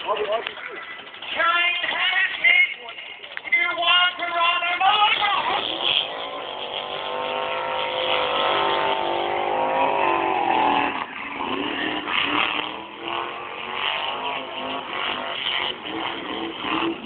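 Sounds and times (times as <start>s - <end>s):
car engine revving high: 4.4s - 17.0s.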